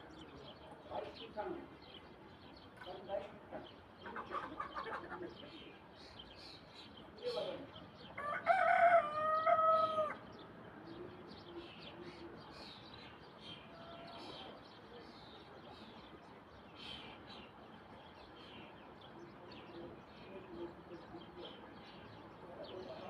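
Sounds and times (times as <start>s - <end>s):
small birds chirping: 0.0s - 23.0s
rooster crowing: 8.2s - 10.2s.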